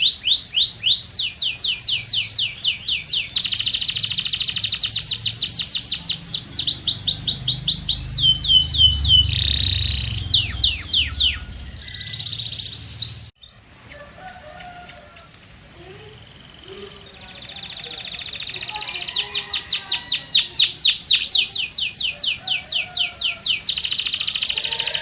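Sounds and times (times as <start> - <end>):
canary singing: 0.0 - 25.0
faint bird chirps: 0.0 - 25.0.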